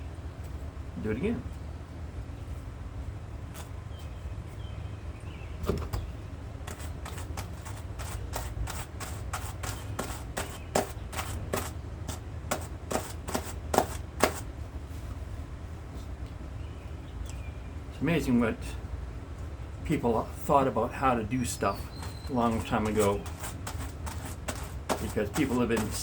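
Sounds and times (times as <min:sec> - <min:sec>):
low steady hum: 0:00.0 - 0:26.0
hand carders brushing strokes: 0:06.7 - 0:14.5, 0:21.9 - 0:26.0.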